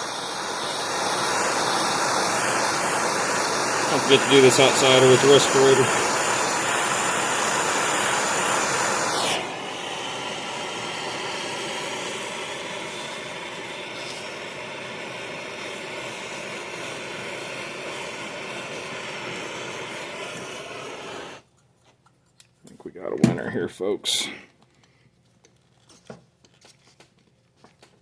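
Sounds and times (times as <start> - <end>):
heat tool blowing: 0.0 - 21.5.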